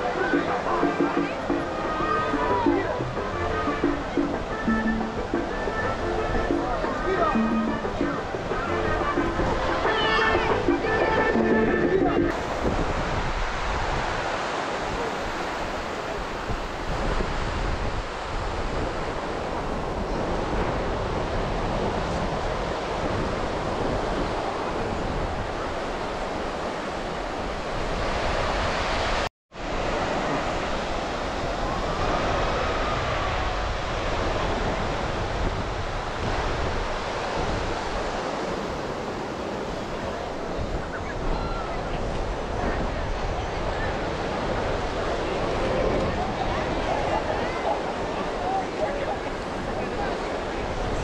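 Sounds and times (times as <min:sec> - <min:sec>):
ocean surf on beach: 0:00.0 - 0:51.0
wind buffeting microphone: 0:12.0 - 0:51.0.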